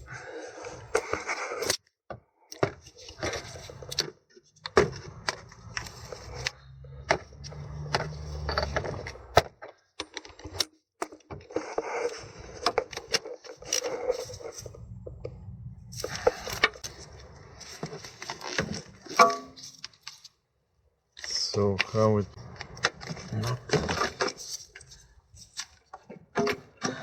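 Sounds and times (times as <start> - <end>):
hand tools and metal parts clinking: 5.6 - 9.3
low steady hum: 14.4 - 17.5.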